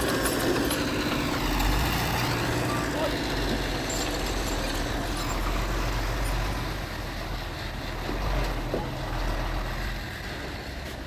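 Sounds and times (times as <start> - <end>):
diesel machinery engine rumble: 0.0 - 11.0.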